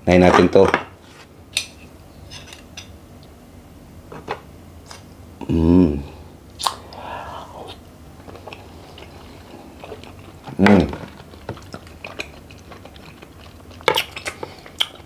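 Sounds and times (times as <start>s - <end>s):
man humming mm: 5.4s - 7.8s
wet chewing and biting: 8.2s - 15.0s.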